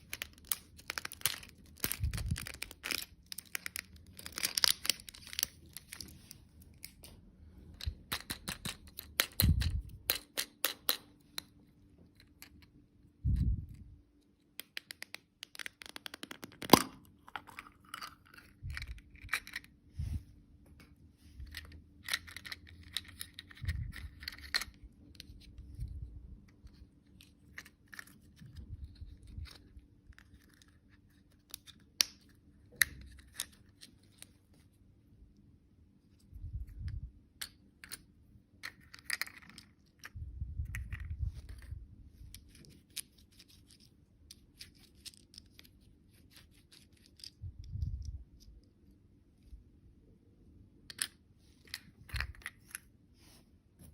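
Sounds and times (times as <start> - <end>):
packaging crinkling: 0.0 - 6.3.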